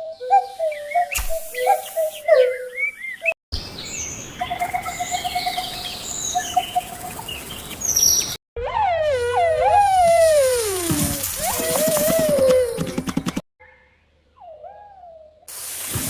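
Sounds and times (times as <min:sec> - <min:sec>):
birds chirping: 0:00.0 - 0:08.4
whistled gliding notes: 0:08.6 - 0:12.9.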